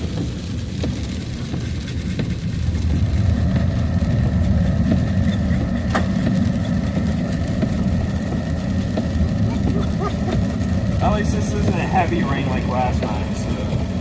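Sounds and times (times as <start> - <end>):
truck engine and road rumble: 0.0 - 14.0.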